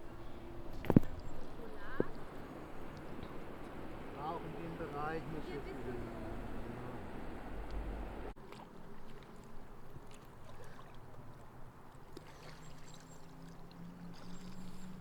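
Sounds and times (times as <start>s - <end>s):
low steady hum: 0.0s - 11.4s
water gurgling along hull: 0.0s - 15.0s.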